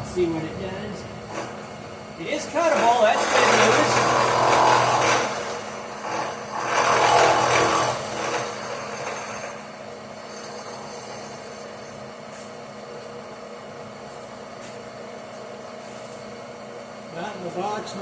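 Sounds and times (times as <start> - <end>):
power tool cutting metal: 2.5 - 12.0.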